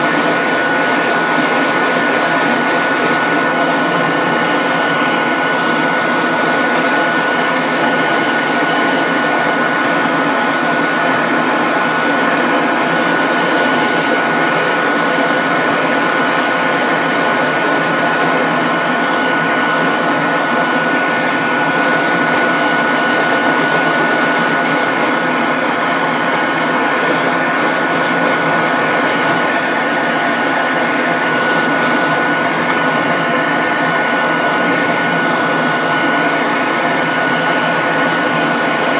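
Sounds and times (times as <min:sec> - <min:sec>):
electric blower motor running: 0:00.0 - 0:38.9.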